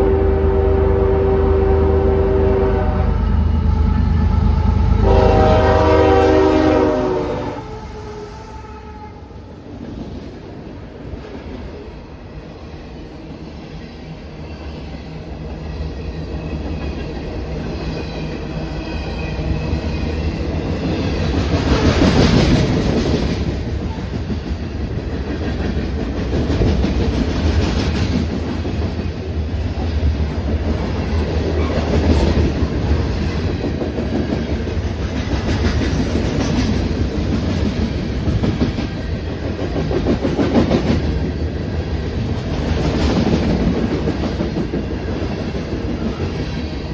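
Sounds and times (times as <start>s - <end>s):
train passing: 0.0s - 46.9s
wheels clacking on rails: 13.2s - 46.9s.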